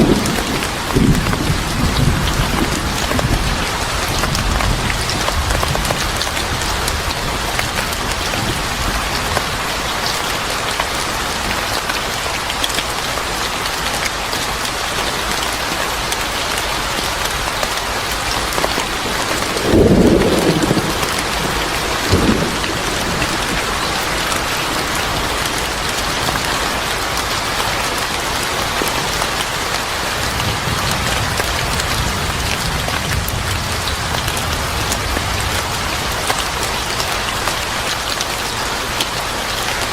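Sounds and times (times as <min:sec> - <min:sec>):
low rumble of thunder: 0:00.0 - 0:09.6, 0:18.3 - 0:27.0, 0:30.2 - 0:36.8
heavy rain falling: 0:00.0 - 0:39.9.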